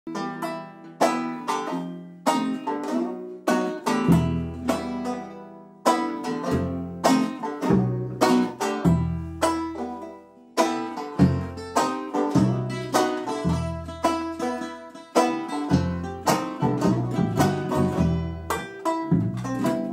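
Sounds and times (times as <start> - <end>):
acoustic guitar playing: 0.1 - 19.9
banjo playing: 0.1 - 19.9
low bass notes: 6.3 - 10.1, 11.2 - 19.9.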